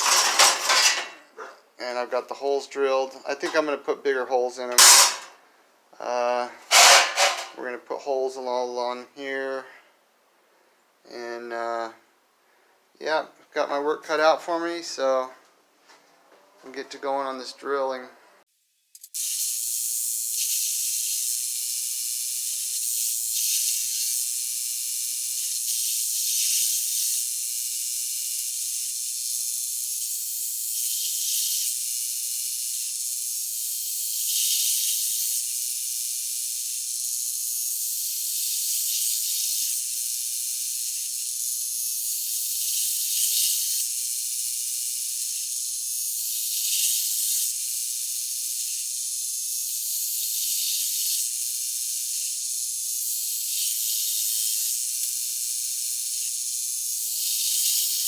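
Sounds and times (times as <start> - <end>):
electric drill boring through metal: 0.0 - 1.1.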